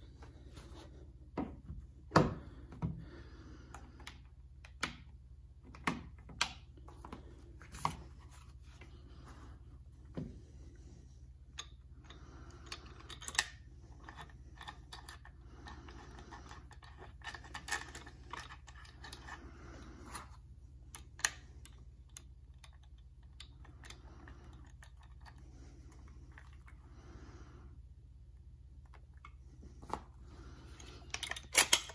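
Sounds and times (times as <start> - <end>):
clicks and scrapes of gun parts: 12.6 - 20.4, 28.9 - 31.9.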